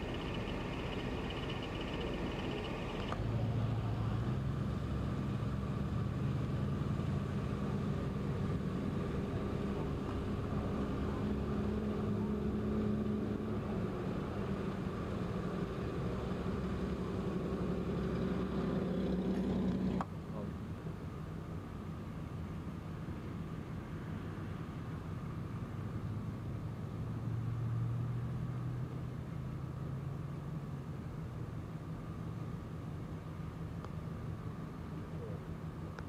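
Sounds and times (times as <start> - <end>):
car engine idling: 0.0 - 4.0.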